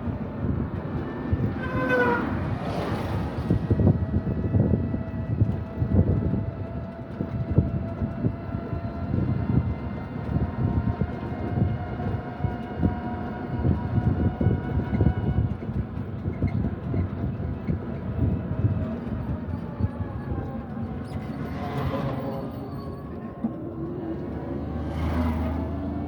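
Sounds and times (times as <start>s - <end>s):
vehicle low rumble: 0.0s - 26.0s.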